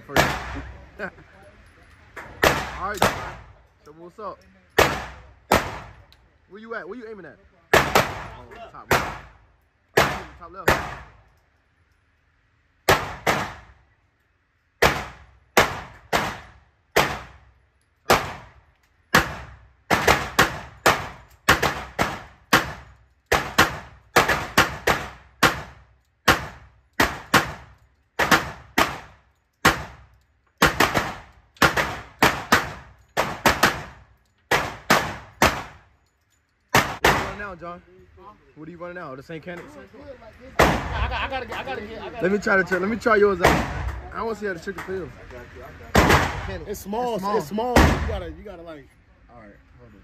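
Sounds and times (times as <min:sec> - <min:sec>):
pistol shots: 0:00.1 - 0:00.7, 0:02.4 - 0:03.5, 0:04.8 - 0:06.0, 0:07.7 - 0:09.4, 0:10.0 - 0:11.2, 0:12.8 - 0:13.8, 0:14.8 - 0:17.5, 0:18.1 - 0:35.9, 0:36.7 - 0:37.4, 0:40.6 - 0:41.0, 0:43.4 - 0:44.0, 0:46.0 - 0:46.6, 0:47.7 - 0:48.2.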